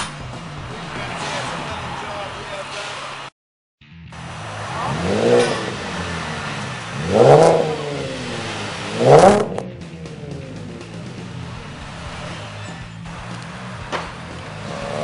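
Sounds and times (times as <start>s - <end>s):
car engine idling: 0.0s - 3.3s, 3.9s - 15.0s
car engine revving: 0.0s - 15.0s.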